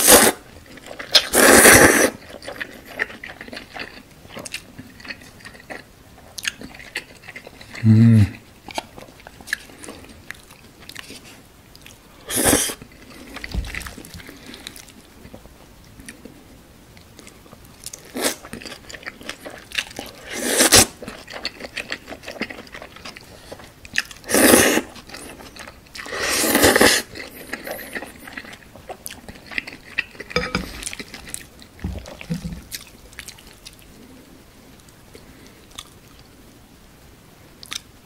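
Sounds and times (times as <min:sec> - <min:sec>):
loud noodle slurps: 0:00.0 - 0:00.4, 0:01.2 - 0:02.2, 0:12.3 - 0:12.8, 0:20.2 - 0:21.0, 0:24.3 - 0:24.9, 0:26.0 - 0:27.1
wet chewing of noodles: 0:00.0 - 0:16.4, 0:17.0 - 0:34.2, 0:34.8 - 0:36.3.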